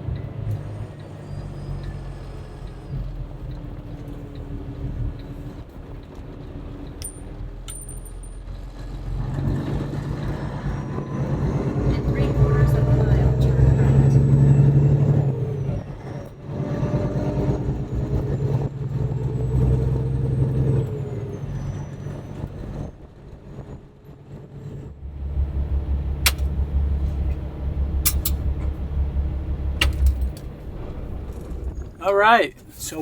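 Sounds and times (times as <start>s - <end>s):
diesel truck engine drone: 0.0s - 33.0s
deep low rumble: 24.5s - 33.0s
sharp clicks: 26.2s - 31.8s.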